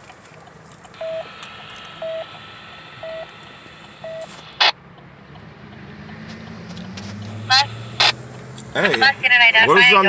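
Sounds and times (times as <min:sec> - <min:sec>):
short electronic beeps: 0:01.0 - 0:02.4, 0:03.0 - 0:03.3, 0:04.0 - 0:04.8, 0:07.5 - 0:08.2.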